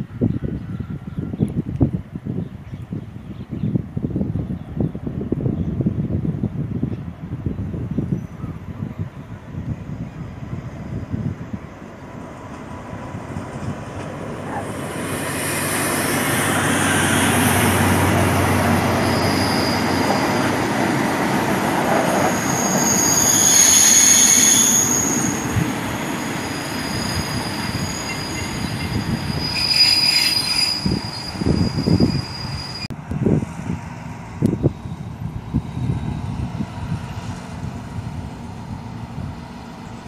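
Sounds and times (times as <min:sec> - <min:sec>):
train coaches rumbling: 0:04.2 - 0:40.0
train wheel squeal: 0:13.4 - 0:25.6, 0:26.2 - 0:32.9.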